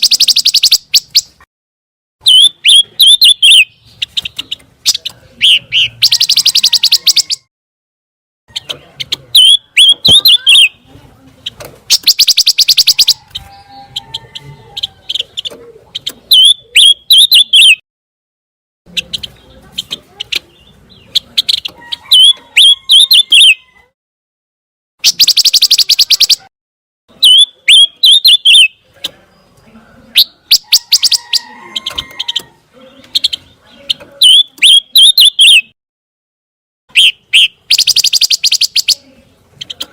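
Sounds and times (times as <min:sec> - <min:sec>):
bird chirps and whistles: 0:00.0 - 0:01.3, 0:02.2 - 0:03.7, 0:11.9 - 0:13.7, 0:16.3 - 0:17.8, 0:22.1 - 0:23.6, 0:25.0 - 0:26.5, 0:27.2 - 0:28.8, 0:34.2 - 0:35.7, 0:36.9 - 0:39.0
rapid buzzy bird trill: 0:00.0 - 0:01.4, 0:11.9 - 0:13.6, 0:25.0 - 0:26.5, 0:36.9 - 0:39.0.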